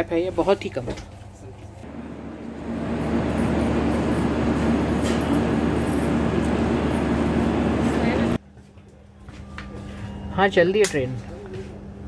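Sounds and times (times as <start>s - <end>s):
passenger train rumbling: 1.8s - 8.4s.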